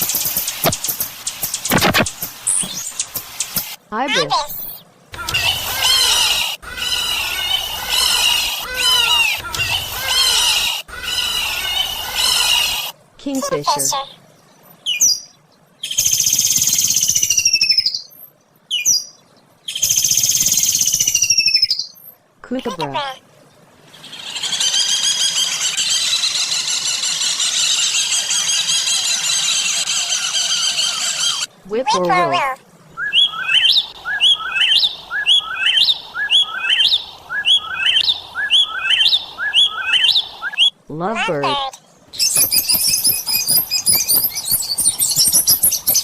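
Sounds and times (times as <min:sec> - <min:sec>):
kingfisher rattling trill call: 0:24.0 - 0:31.5, 0:33.0 - 0:40.7, 0:42.2 - 0:46.0
whip-poor-will whistled song: 0:42.2 - 0:46.0.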